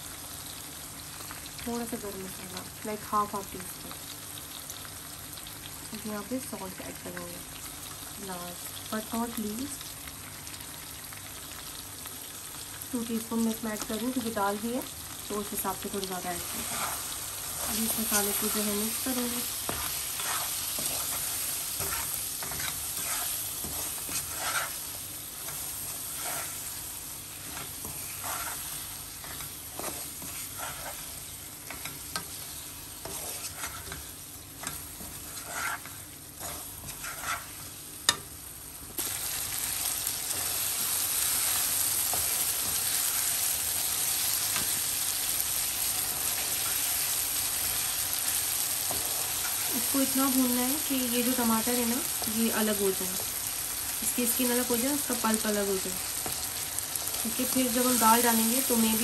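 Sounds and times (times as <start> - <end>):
food sizzling in hot oil: 0.0 - 59.0
wooden spatula scraping a pan: 16.4 - 26.8, 27.4 - 37.7.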